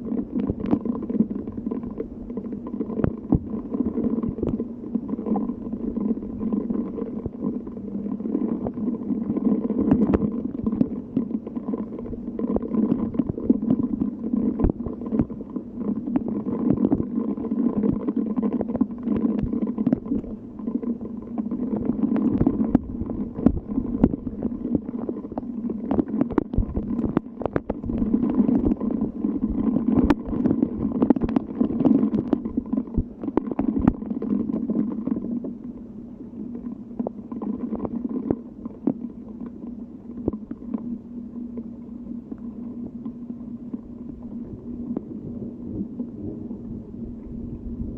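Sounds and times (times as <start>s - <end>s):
raindrops ticking: 8.4s - 35.6s.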